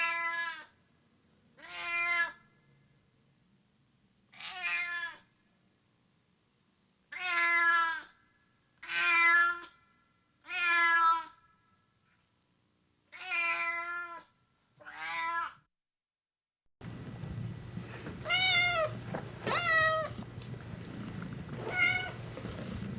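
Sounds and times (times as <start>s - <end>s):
cat meowing loudly: 1.6s - 2.4s, 4.4s - 5.3s, 7.1s - 8.2s, 8.8s - 9.8s, 10.4s - 11.4s, 13.1s - 15.6s, 18.2s - 20.2s, 21.6s - 22.3s.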